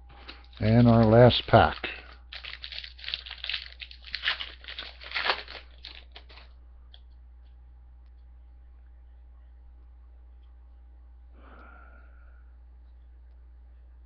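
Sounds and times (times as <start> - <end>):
faint hum: 0.0 - 14.0
wrapper tearing and crinkling: 0.3 - 6.5.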